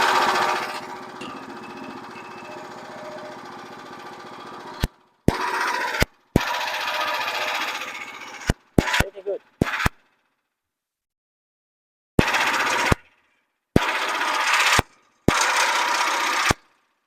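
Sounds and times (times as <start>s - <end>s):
portable bandsaw mill running: 0.0s - 8.5s, 12.2s - 12.9s, 13.9s - 16.6s.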